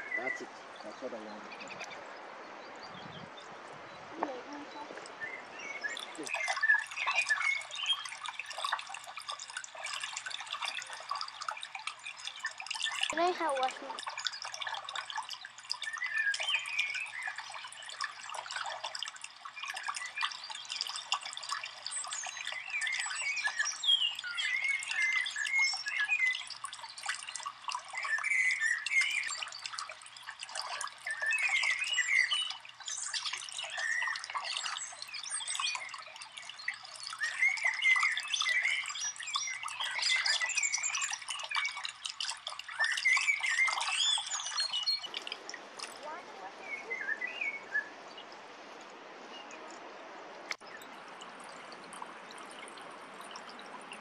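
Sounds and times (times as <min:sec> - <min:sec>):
birds calling and chirping: 0:00.0 - 0:49.9.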